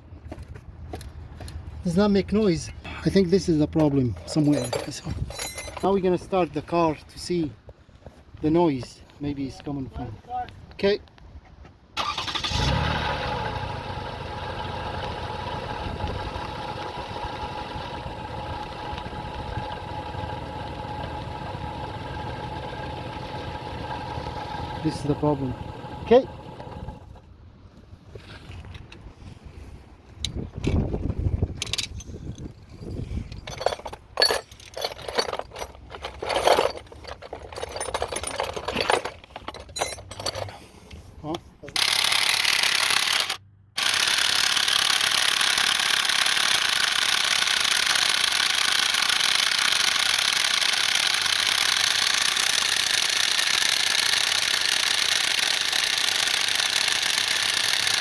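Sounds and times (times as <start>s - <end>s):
metallic rattling and clinking: 3.8s - 6.1s, 31.6s - 40.6s
car engine idling: 12.0s - 27.2s
engine starter cranking: 12.0s - 27.2s, 41.8s - 58.0s.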